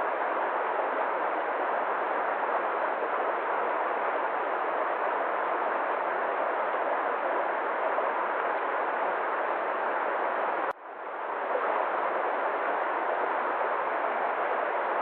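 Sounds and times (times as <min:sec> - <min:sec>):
rushing nature ambience: 0:00.0 - 0:15.0.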